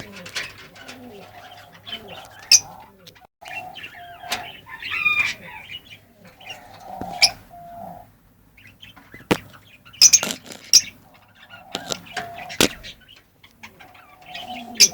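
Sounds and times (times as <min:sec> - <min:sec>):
lovebirds chirping: 0:00.1 - 0:14.9
sharp clicks: 0:09.3 - 0:10.9, 0:11.8 - 0:12.8.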